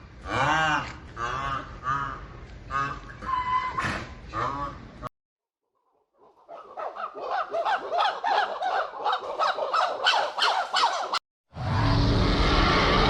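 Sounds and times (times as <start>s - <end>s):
poultry squawking: 6.3s - 11.2s.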